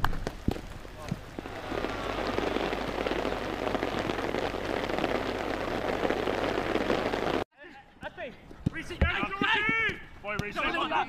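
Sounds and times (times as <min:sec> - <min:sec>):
rain falling: 0:00.0 - 0:07.5.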